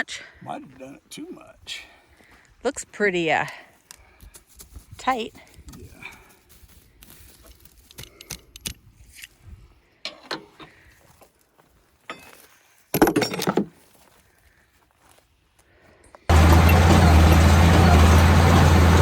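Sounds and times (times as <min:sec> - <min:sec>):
metallic tool clinks and knocks: 0:12.1 - 0:13.7
metal clatter: 0:16.3 - 0:19.0.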